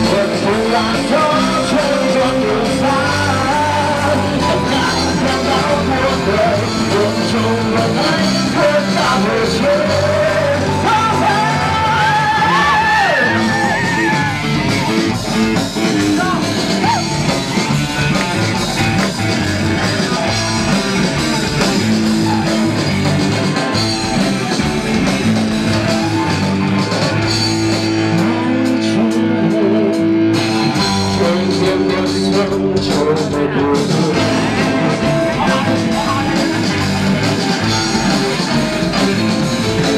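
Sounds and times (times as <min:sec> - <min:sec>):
person singing: 0:00.0 - 0:14.4, 0:27.7 - 0:39.9
rock band playing: 0:00.0 - 0:39.9.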